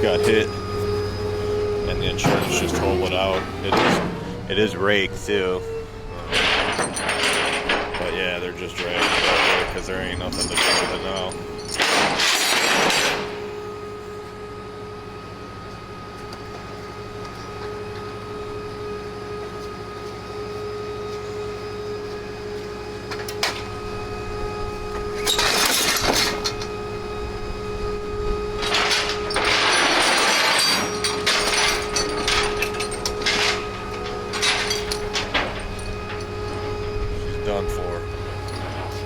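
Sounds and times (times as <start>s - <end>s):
tow truck machinery whine: 0.0s - 39.0s.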